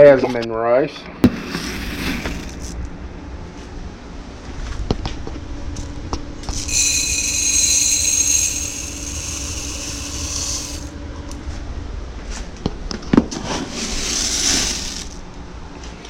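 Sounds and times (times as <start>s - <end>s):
dry rice being poured: 6.5s - 10.9s, 13.4s - 15.2s.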